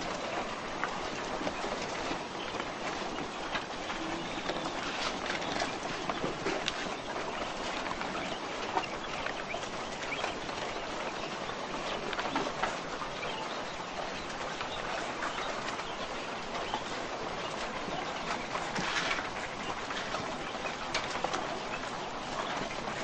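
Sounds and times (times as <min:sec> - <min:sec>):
quail calling and chirping: 0:00.0 - 0:23.0
scratchy clatter: 0:17.4 - 0:23.0.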